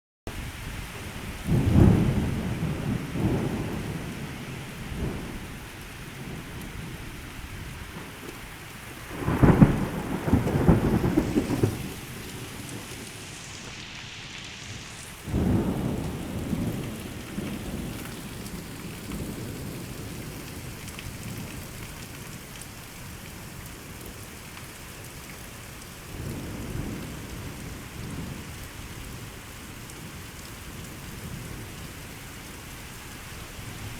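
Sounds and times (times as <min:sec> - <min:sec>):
heavy rain pouring: 0:00.3 - 0:33.9
thunder rumbling: 0:00.4 - 0:13.8, 0:15.2 - 0:21.7.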